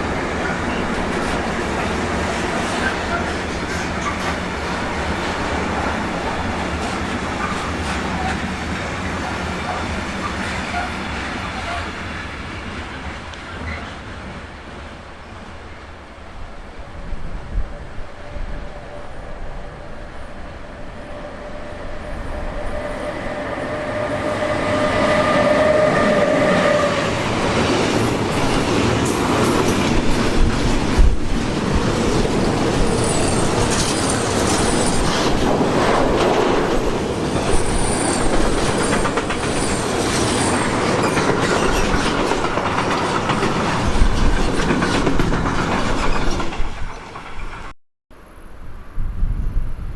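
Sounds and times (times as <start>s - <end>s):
train passing: 0.0s - 47.7s
wheels clicking over rail joints: 27.6s - 47.7s.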